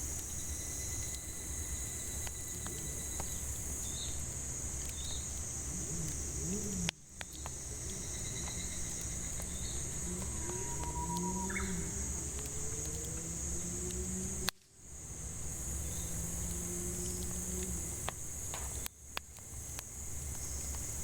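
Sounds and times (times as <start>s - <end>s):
cicadas droning: 0.0s - 21.0s
firewood crackling: 0.0s - 21.0s
bird calls: 9.4s - 12.0s.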